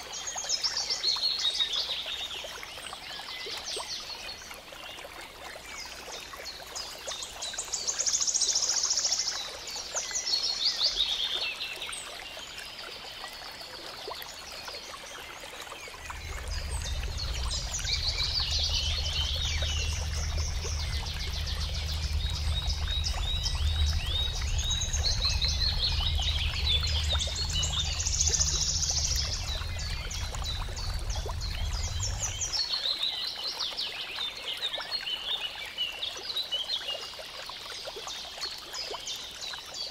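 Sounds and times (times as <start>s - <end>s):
songbirds trilling and chirping: 0.0s - 37.0s
low rumble: 15.8s - 32.7s.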